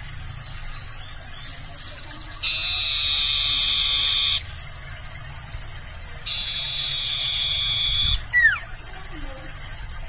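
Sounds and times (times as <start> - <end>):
bird buzzing trills: 1.5 - 4.6, 6.2 - 9.5.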